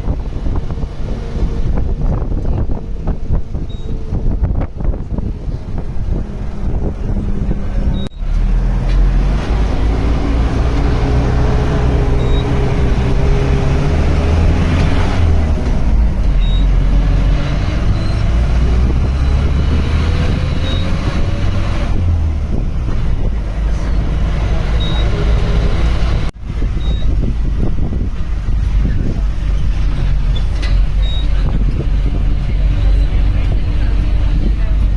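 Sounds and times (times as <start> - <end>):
vehicle engine droning: 0.0 - 34.9.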